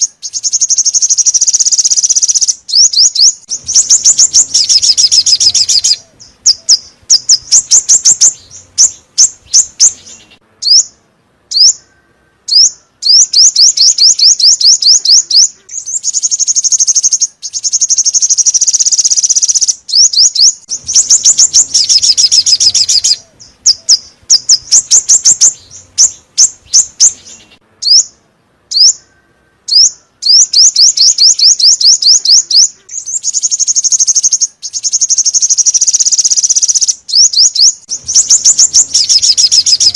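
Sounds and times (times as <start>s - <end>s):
songbird trilling: 0.0s - 39.9s.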